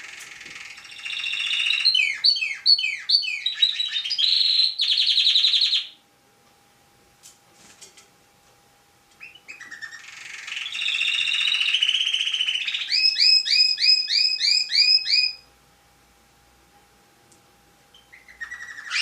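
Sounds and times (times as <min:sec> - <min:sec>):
songbird singing: 0:00.0 - 0:06.0, 0:09.2 - 0:15.5.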